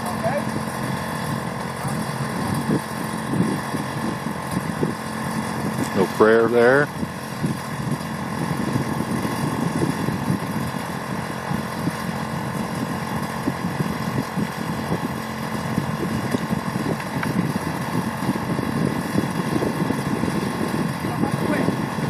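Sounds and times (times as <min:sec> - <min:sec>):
small engine idling: 0:00.0 - 0:22.0.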